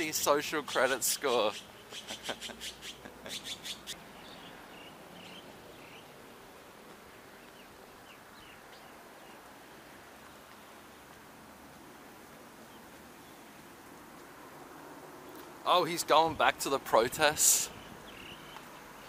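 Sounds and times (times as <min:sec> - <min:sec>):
outdoor background hiss: 0:00.0 - 0:19.0
faint bird chirps: 0:00.7 - 0:06.1, 0:17.7 - 0:19.0.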